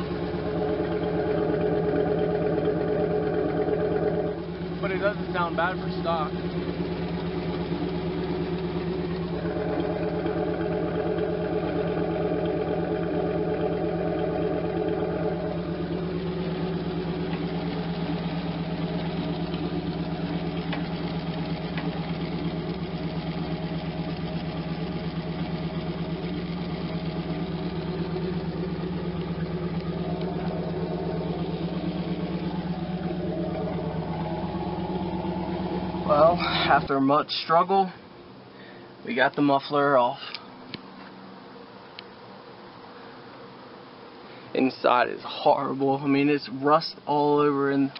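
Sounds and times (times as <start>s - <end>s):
exhaust leak tapping: 0.0s - 36.9s
car engine idling: 0.0s - 47.9s.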